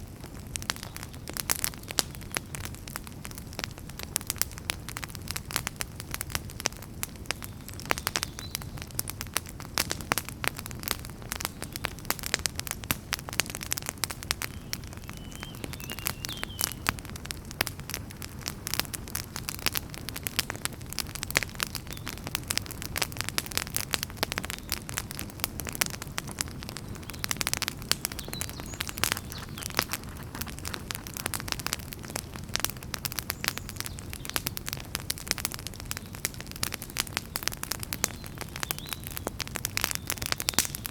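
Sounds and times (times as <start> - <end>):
wood fire crackling: 0.0 - 40.9
low rush of flame: 22.4 - 33.6.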